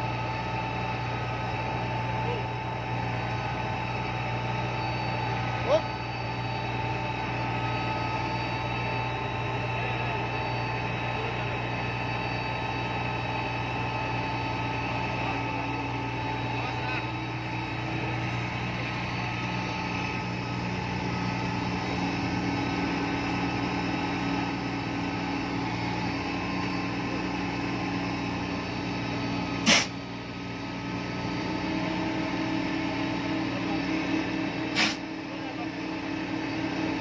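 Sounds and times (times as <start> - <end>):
drill rig engine humming: 0.0 - 37.0
short sharp burst: 29.6 - 30.0, 34.7 - 35.0.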